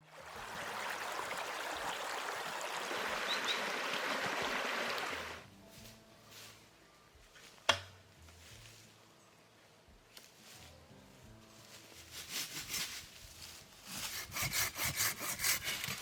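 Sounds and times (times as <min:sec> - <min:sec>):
flowing water rushing: 0:00.0 - 0:05.4.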